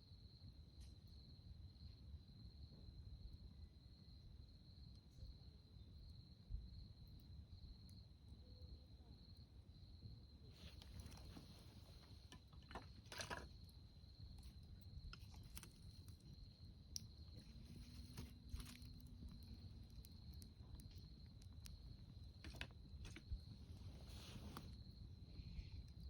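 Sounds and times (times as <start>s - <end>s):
campfire crackling and popping: 10.6s - 25.0s.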